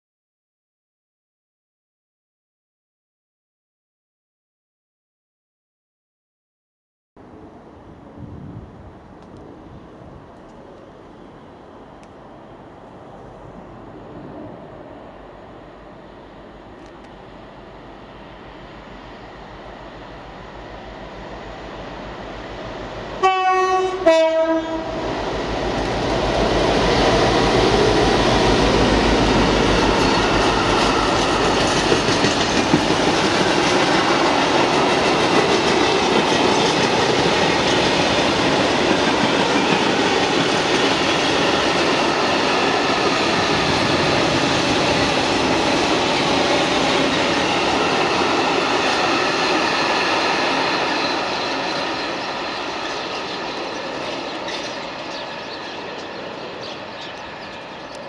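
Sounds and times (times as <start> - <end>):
diesel locomotive approaching: 7.2 - 58.0
two-tone train horn: 23.2 - 25.2
freight wagons rumbling on rails: 23.8 - 58.0.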